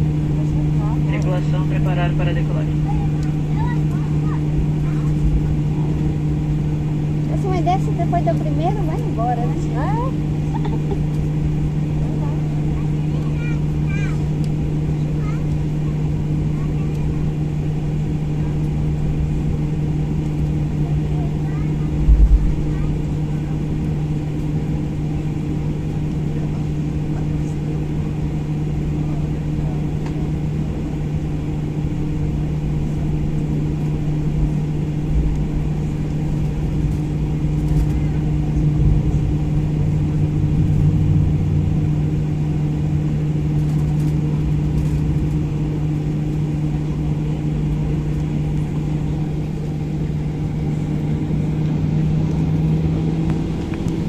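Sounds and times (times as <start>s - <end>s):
jet engine cabin rumble and hum: 0.0s - 54.0s
low bumps: 34.3s - 45.8s.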